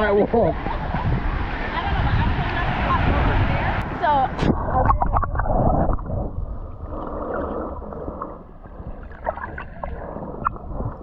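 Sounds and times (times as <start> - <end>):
water sloshing and splashing: 4.1 - 11.0.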